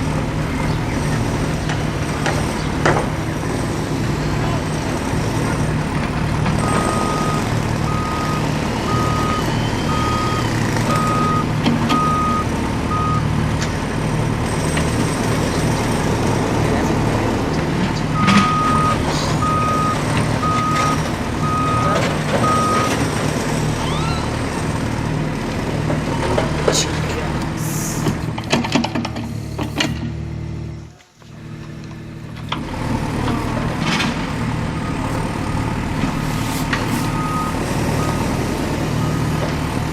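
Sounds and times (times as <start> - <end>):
construction vehicle engine running: 0.0 - 39.9
reversing alarm beeps: 6.6 - 13.3, 18.2 - 23.0, 37.1 - 39.4.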